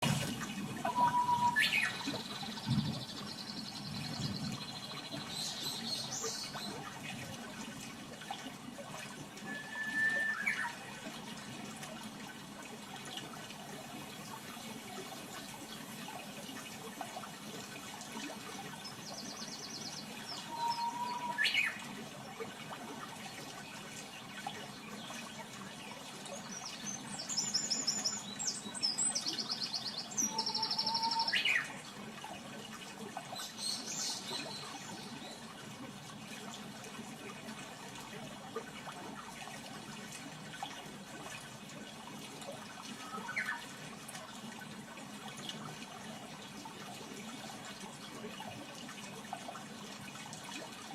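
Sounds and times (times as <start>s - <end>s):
songbird trilling: 0.8s - 2.6s, 20.4s - 21.8s, 30.2s - 31.7s
bird calls: 0.8s - 4.6s, 9.4s - 11.0s, 20.4s - 21.8s, 30.1s - 31.8s
short lower whistle: 0.9s - 1.7s, 9.5s - 10.7s, 20.5s - 21.4s.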